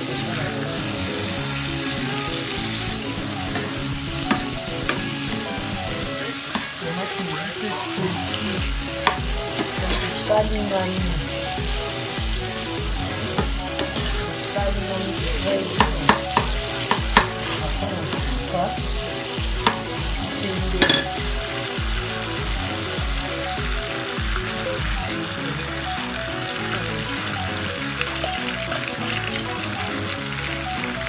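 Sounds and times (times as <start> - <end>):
fish sizzling in hot oil: 0.0 - 31.0
metal spatula scraping pan: 9.0 - 10.2, 13.3 - 14.4.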